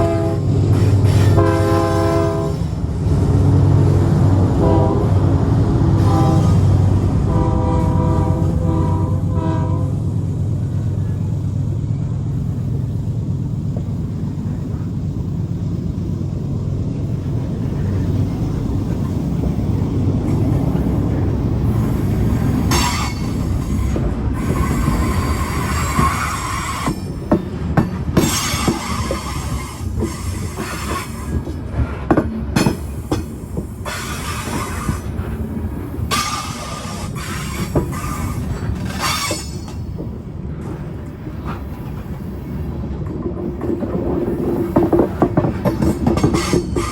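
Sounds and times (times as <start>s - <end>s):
locomotive air horn chord: 0.0s - 2.7s, 4.5s - 10.1s
rolling train noise: 0.0s - 46.9s
diesel engine rumble: 0.1s - 28.2s
wheels clicking over rail joints: 16.0s - 42.1s, 42.9s - 46.9s
wheel squeal: 36.1s - 39.8s.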